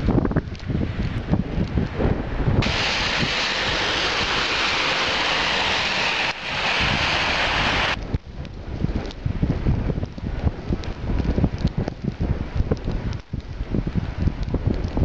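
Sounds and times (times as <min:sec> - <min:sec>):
blizzard wind buffeting microphone: 0:00.0 - 0:15.0
steady rushing hiss: 0:02.6 - 0:08.0.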